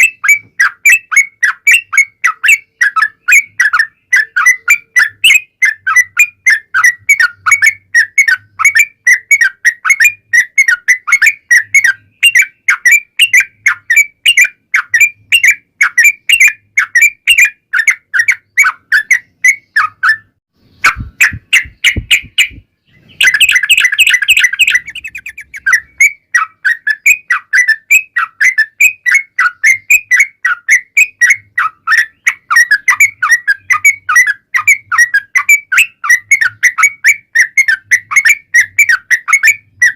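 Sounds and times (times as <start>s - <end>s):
bird singing rapid chirps: 0.0s - 39.9s
low thumps: 20.8s - 23.2s.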